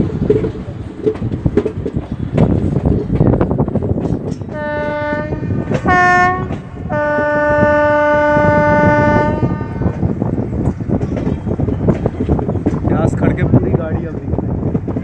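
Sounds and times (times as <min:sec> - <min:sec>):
train wheels clattering on rails: 0:00.0 - 0:15.0
train horn blasts: 0:04.5 - 0:10.0.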